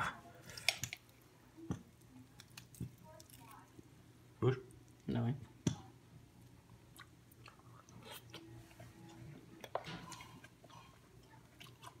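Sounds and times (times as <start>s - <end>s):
faint chewing: 6.4s - 12.0s.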